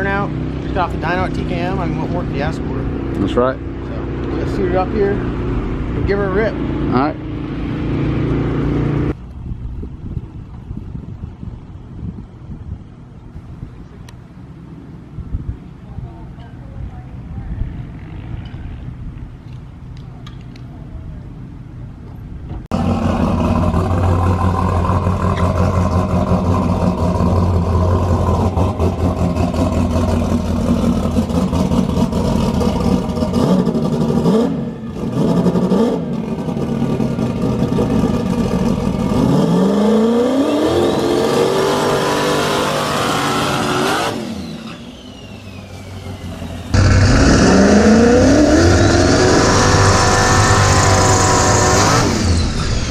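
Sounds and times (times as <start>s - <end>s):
race car engine revving: 22.7s - 52.9s.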